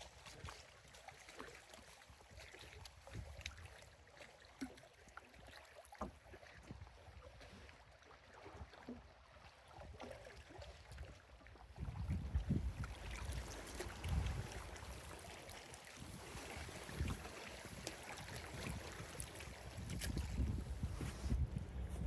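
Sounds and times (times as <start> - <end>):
paddle splashing in water: 0.0 - 22.0.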